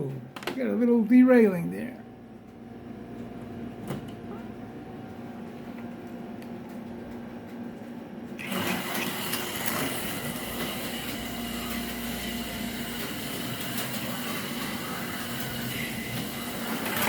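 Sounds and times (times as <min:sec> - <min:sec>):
electric motor whining: 0:08.4 - 0:17.0.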